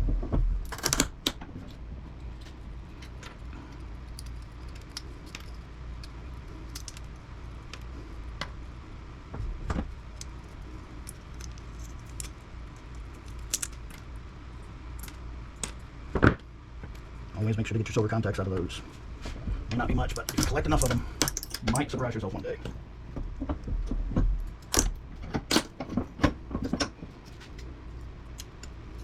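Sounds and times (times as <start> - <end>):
steady low hum: 0.0 - 29.0
small parts clicking and clinking: 0.6 - 8.8, 9.9 - 15.9, 20.0 - 22.0, 24.4 - 25.9, 26.6 - 29.0.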